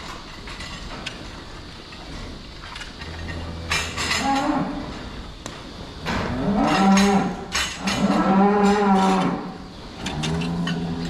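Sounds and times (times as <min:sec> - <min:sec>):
cows mooing: 0:03.0 - 0:04.9, 0:06.2 - 0:11.0.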